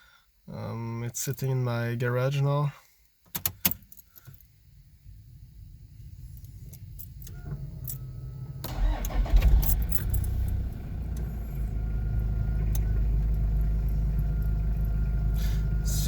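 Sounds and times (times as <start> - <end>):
keys clicking in ignition: 3.3 - 4.5, 6.2 - 11.6, 12.7 - 15.0
engine idling: 4.4 - 16.0
starter cranking: 6.3 - 11.5.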